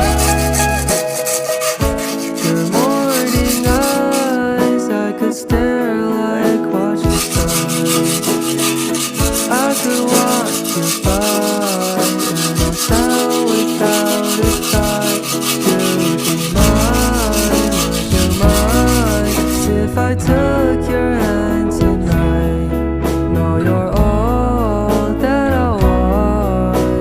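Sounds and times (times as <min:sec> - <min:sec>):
sanding strokes: 0:00.0 - 0:04.5, 0:07.1 - 0:19.8
song with singing and guitar: 0:00.0 - 0:27.0.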